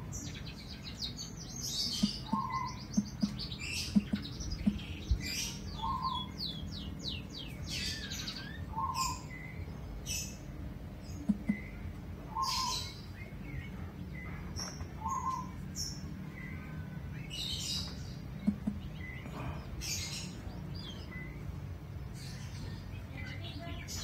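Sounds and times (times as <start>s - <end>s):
low steady hum: 0.0s - 23.9s
birds chirping: 0.0s - 24.0s
quick low pops: 4.0s - 4.9s, 18.5s - 18.9s.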